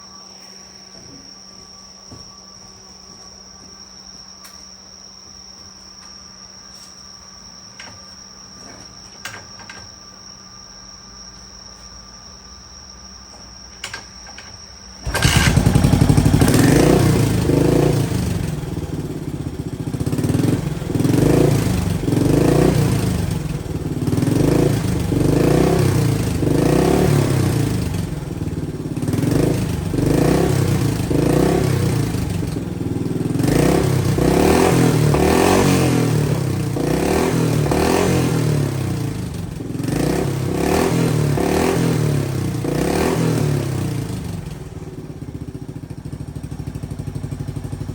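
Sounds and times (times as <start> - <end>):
motorcycle engine revving: 15.0 - 47.9.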